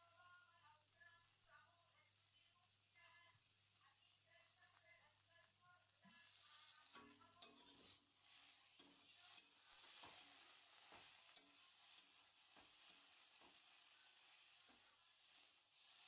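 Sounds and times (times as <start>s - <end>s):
food sizzling in a pan: 0.0s - 16.0s
spatula scraping and stirring: 6.0s - 16.0s.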